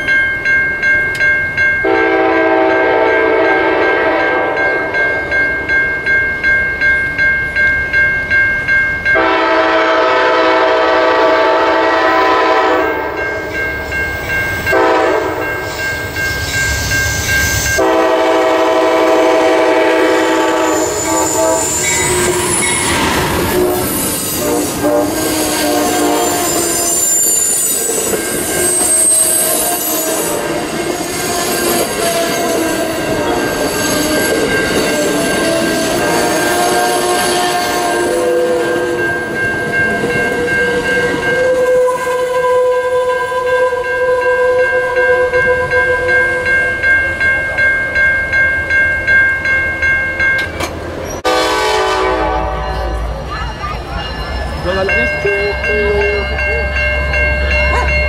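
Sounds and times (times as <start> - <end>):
crossing bell ringing: 0.0 - 58.0
train horn blasts: 1.8 - 4.8, 9.2 - 13.3, 14.7 - 15.6, 17.8 - 39.0, 40.6 - 46.4, 51.2 - 53.0
wheel squeal: 20.7 - 24.4, 25.2 - 30.3.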